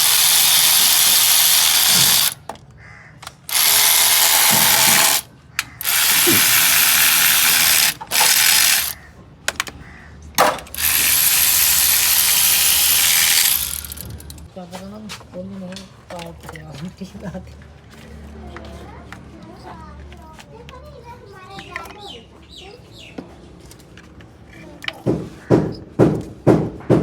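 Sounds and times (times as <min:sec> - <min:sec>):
mechanical tool hissing: 0:00.0 - 0:02.4, 0:03.5 - 0:09.0, 0:10.8 - 0:14.4.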